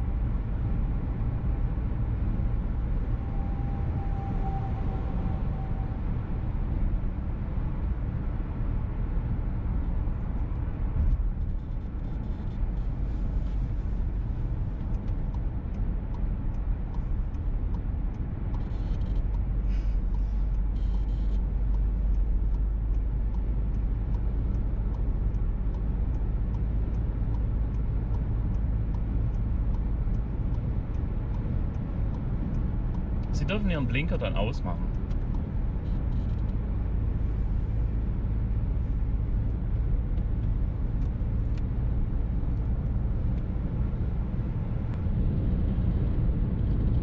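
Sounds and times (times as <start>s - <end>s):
car engine and road rumble: 0.0s - 47.0s
turn signal ticking: 13.7s - 46.2s.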